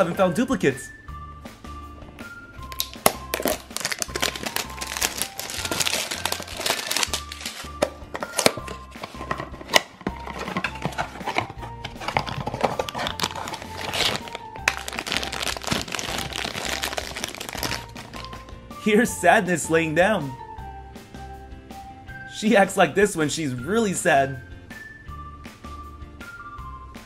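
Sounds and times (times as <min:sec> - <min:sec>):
background music with bass: 0:00.0 - 0:27.0
foil bag crinkling: 0:02.8 - 0:08.6, 0:12.0 - 0:18.4.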